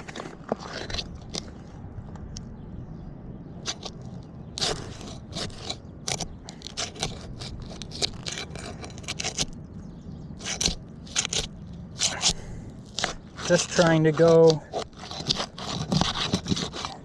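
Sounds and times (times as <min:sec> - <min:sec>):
tool scraping under shingles: 0:00.0 - 0:01.8, 0:03.6 - 0:09.6, 0:10.4 - 0:17.0.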